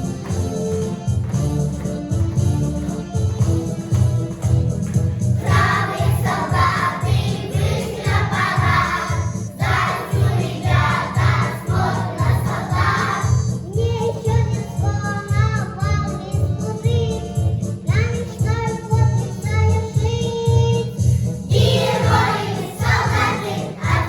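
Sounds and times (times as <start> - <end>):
children's group singing: 5.4 - 13.4, 21.5 - 24.0.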